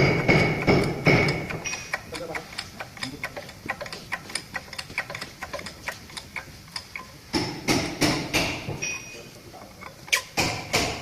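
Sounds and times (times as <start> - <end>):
loud knocks: 0.0 - 1.6, 7.3 - 8.9, 10.4 - 11.0.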